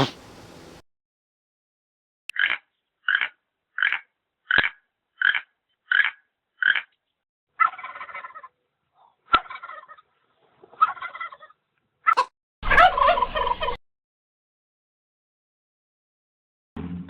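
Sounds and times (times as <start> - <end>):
animal calling: 0.0 - 0.4.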